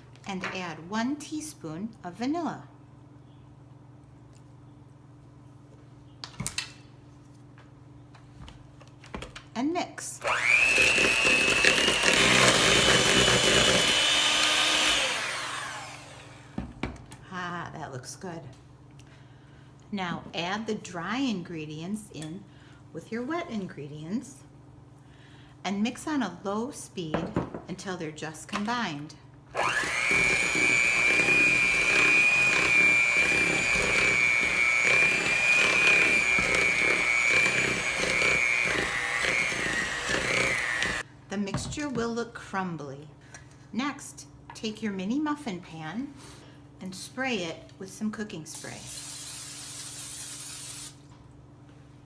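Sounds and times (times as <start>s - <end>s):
electric mixer whining: 10.2s - 16.6s, 29.6s - 41.0s.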